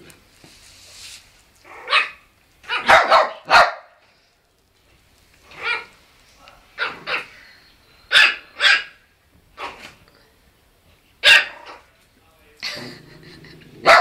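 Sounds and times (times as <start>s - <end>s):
puppy yapping: 1.7s - 3.9s, 5.5s - 5.9s.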